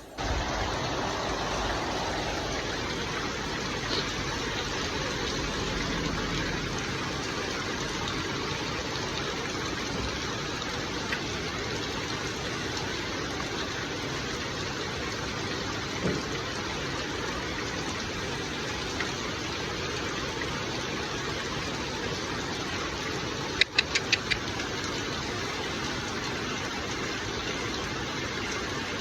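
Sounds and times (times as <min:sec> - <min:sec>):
water spraying shower: 0:00.0 - 0:06.2.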